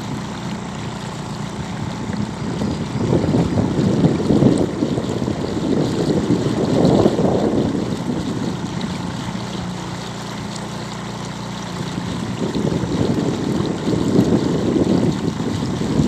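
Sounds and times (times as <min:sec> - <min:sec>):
wind gusting on microphone: 0:00.0 - 0:09.9, 0:11.8 - 0:16.0
moving water: 0:00.0 - 0:16.0.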